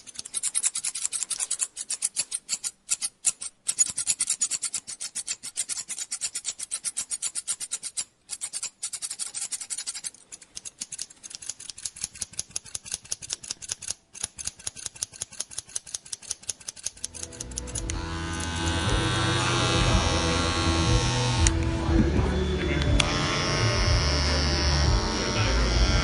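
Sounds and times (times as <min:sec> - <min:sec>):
hand tool strokes through hair: 0:00.0 - 0:21.6
electric hair clippers buzzing: 0:17.0 - 0:26.0.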